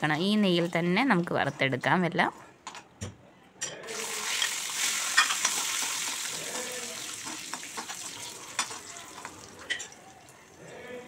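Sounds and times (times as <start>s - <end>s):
steel spoon scraping a pan: 3.8s - 10.0s
nuts sizzling in a pan: 3.9s - 9.9s.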